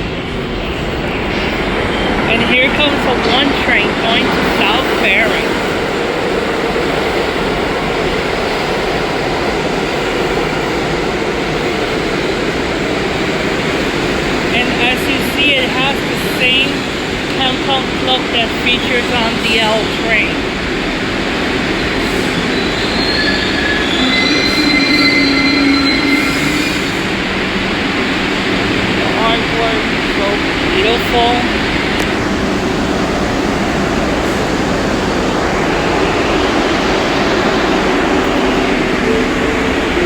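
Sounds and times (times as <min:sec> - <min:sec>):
train wheels rumbling on rails: 0:00.0 - 0:40.0
train wheel squeals: 0:21.6 - 0:27.2.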